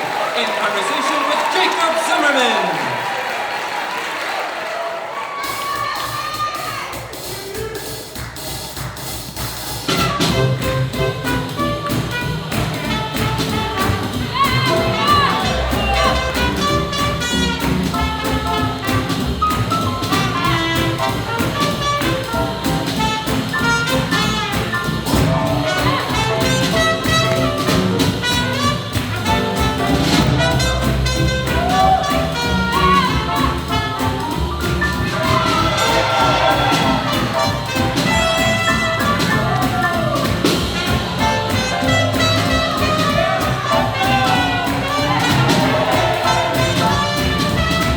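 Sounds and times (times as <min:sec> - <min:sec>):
swing jazz band playing: 0:06.4 - 0:47.9
saxophone: 0:09.9 - 0:47.9
trumpet: 0:09.9 - 0:47.9.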